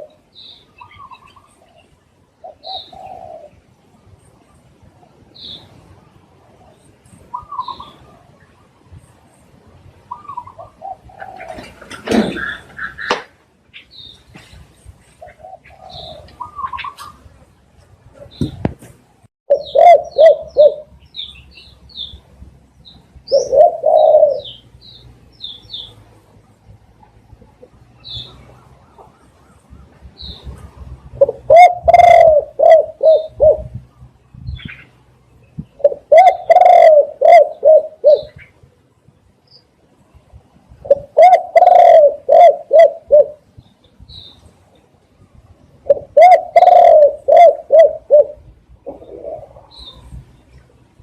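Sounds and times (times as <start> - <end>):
doves cooing: 0.0 - 3.8, 6.6 - 8.8, 10.1 - 13.3, 15.0 - 18.8, 19.5 - 20.9, 23.2 - 24.7, 27.0 - 34.0, 35.6 - 38.5, 40.8 - 43.5, 45.8 - 50.2
small birds chirping: 0.0 - 51.0
small bird chirping: 12.4 - 17.2, 19.5 - 28.5.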